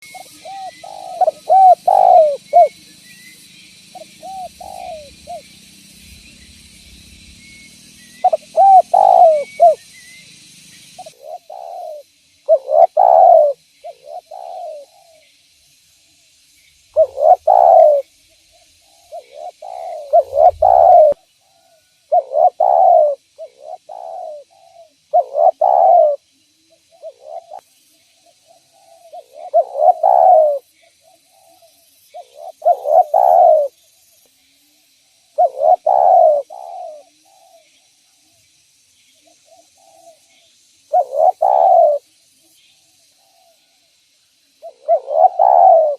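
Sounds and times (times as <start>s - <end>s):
dove cooing: 0.0s - 3.0s, 3.9s - 7.3s, 8.1s - 9.9s, 11.0s - 15.2s, 16.9s - 18.1s, 18.8s - 27.6s, 28.4s - 33.8s, 35.4s - 37.7s, 39.3s - 40.3s, 40.9s - 42.1s, 44.6s - 45.9s
faint steady hiss: 0.0s - 45.9s.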